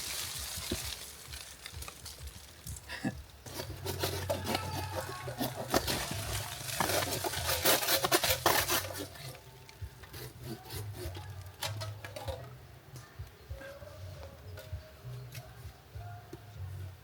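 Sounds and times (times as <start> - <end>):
rough scraping and rasping: 0.0 - 12.5.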